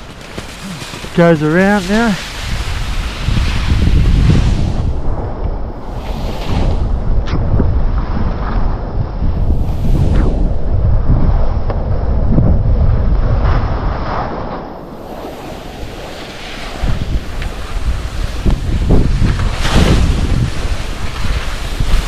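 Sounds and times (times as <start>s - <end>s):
skis scraping on snow: 0.0s - 5.0s, 5.8s - 7.0s, 13.4s - 22.0s
wind buffeting microphone: 0.0s - 22.0s.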